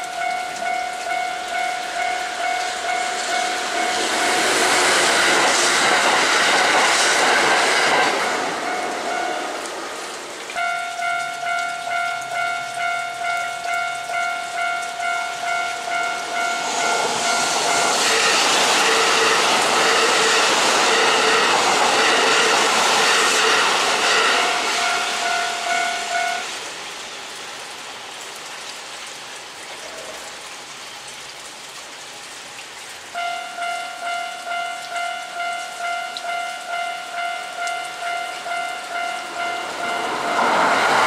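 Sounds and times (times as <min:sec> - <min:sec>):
heavy rain hissing: 0:00.0 - 0:41.0
train rushing past: 0:00.6 - 0:10.2, 0:14.6 - 0:26.9, 0:35.0 - 0:41.0
level crossing bell dinging: 0:10.6 - 0:18.0, 0:24.4 - 0:26.4, 0:33.2 - 0:40.2.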